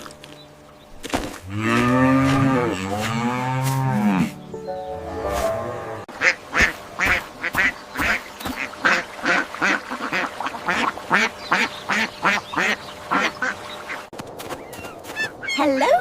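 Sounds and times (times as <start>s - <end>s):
ducks quacking: 5.9s - 14.1s.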